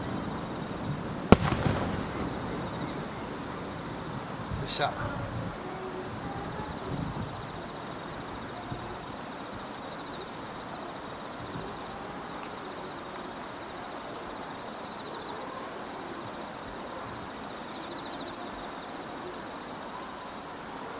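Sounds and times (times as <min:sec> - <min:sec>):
faint pulsing chirp: 0:00.0 - 0:09.1
crickets trilling: 0:00.0 - 0:20.9
low background noise: 0:00.0 - 0:20.9.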